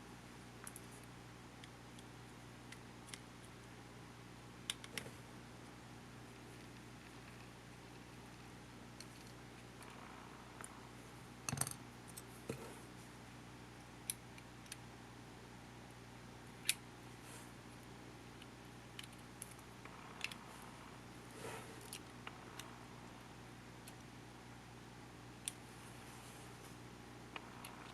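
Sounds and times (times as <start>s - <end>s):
steady low hum: 0.0s - 27.9s
tools and small parts clicking: 11.5s - 12.3s.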